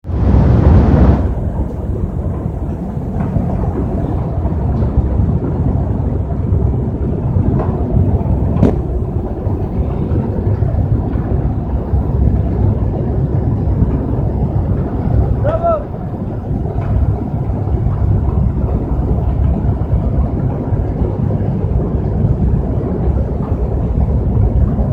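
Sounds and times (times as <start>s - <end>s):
crusher machine rumbling: 0.0s - 24.9s
short knocks: 8.5s - 9.0s.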